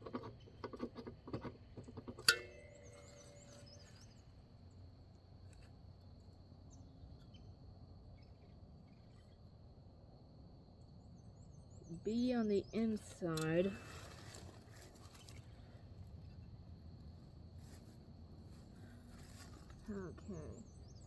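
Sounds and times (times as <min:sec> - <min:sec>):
sharp ringing clink: 0:02.3 - 0:04.2.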